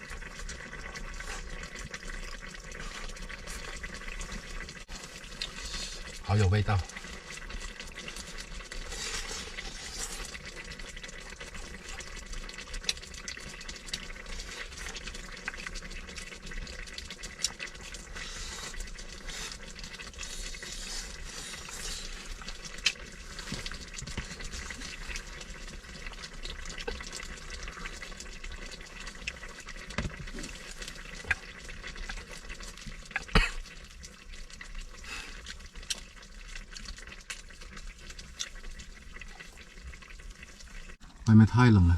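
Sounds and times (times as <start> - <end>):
food cooking hiss: 4.7 - 12.1, 14.0 - 25.5.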